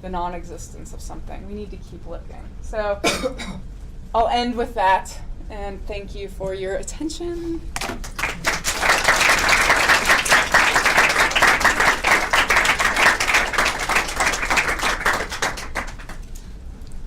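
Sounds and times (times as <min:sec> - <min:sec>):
audience applauding: 0:07.8 - 0:16.3.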